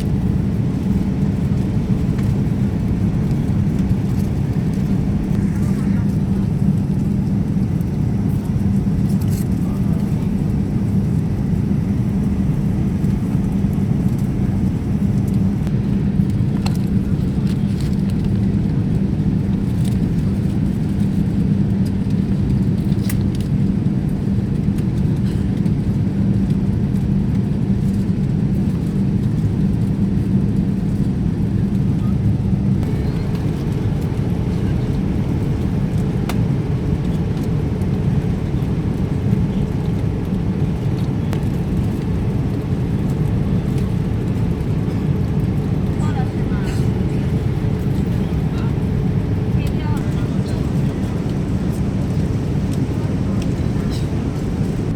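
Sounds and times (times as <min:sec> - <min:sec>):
airliner engines rumbling: 0:00.0 - 0:54.9
cabin hum: 0:02.4 - 0:08.8, 0:32.7 - 0:36.8, 0:45.6 - 0:54.9.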